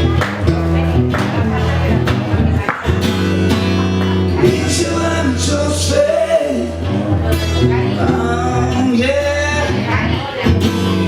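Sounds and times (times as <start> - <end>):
bass line: 0.0 - 11.0
guitar: 0.0 - 11.0
person singing: 4.3 - 11.0.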